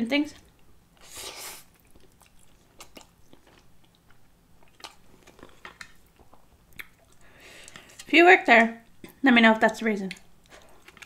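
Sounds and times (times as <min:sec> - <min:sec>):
chewing noodles: 0:00.4 - 0:08.1, 0:10.1 - 0:11.0
wet mouth clicks and smacks: 0:04.8 - 0:07.8.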